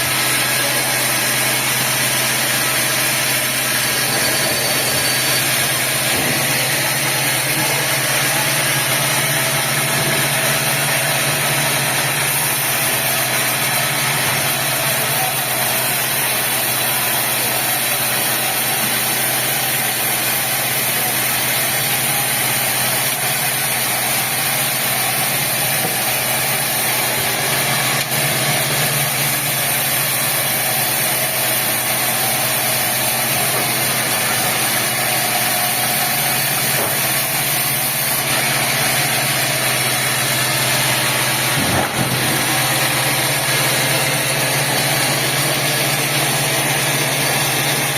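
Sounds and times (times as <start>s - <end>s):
sawmill machinery drone: 0.0s - 47.9s.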